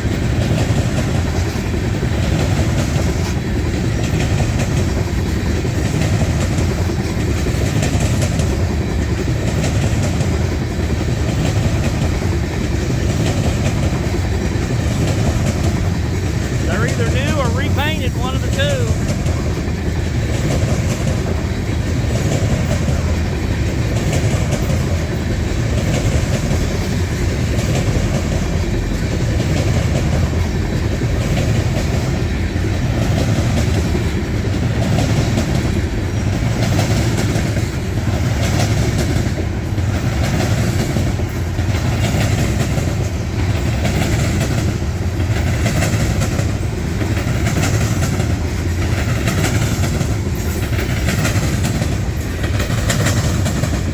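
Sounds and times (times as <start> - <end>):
train rumble: 0.0 - 53.9
train wheels clicking over rail joints: 0.0 - 53.9.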